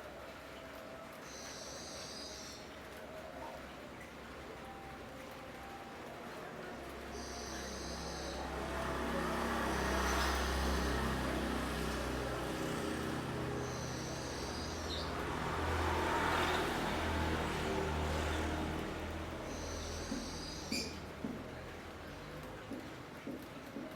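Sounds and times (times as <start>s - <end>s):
road traffic passing: 6.8s - 23.8s.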